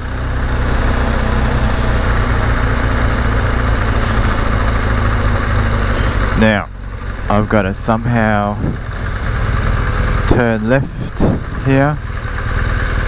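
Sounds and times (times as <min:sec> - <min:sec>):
motorcycle engine running: 0:00.0 - 0:13.0
wind rushing on microphone: 0:08.4 - 0:09.1, 0:10.3 - 0:11.8.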